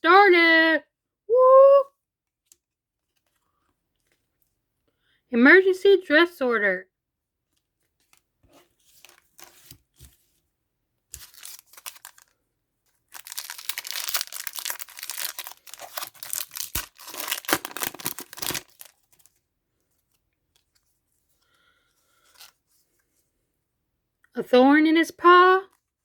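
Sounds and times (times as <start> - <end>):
wrapper tearing and crinkling: 11.1 - 12.4, 13.0 - 19.4.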